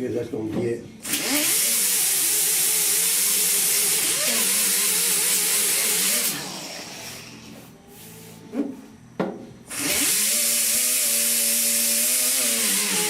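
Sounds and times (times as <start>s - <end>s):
grinder grinding metal: 1.0s - 7.6s, 9.7s - 13.0s
grinder spinning down: 1.1s - 7.4s, 9.7s - 13.0s.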